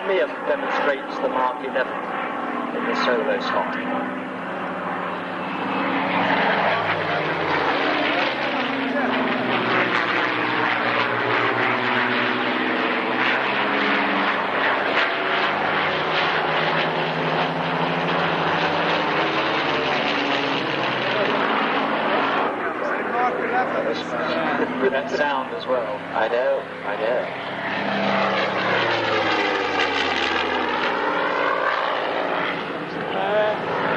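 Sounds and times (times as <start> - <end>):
piston aircraft engines flying past: 0.0 - 33.9.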